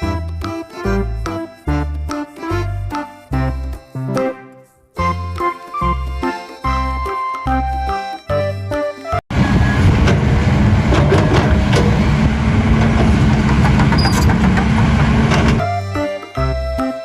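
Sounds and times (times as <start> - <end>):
music: 0.0 - 9.9, 15.5 - 17.0
vehicle engine running: 9.3 - 15.6.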